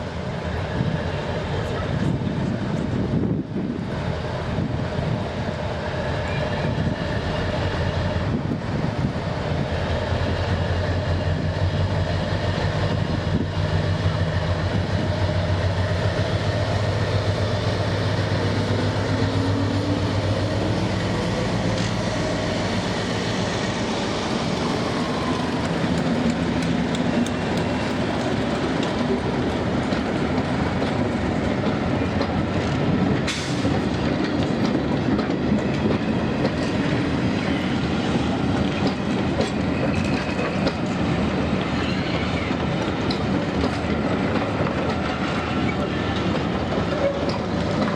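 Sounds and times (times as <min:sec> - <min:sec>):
diesel locomotive engine: 0:00.0 - 0:47.9
wheels clicking over rail joints: 0:24.2 - 0:37.4, 0:38.4 - 0:47.9.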